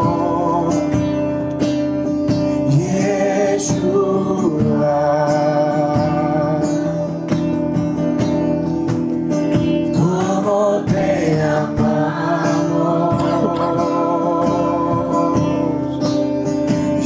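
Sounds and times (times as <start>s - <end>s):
person singing worship song: 0.0s - 1.6s, 2.5s - 7.5s, 10.0s - 17.0s
guitar accompaniment: 0.0s - 17.0s.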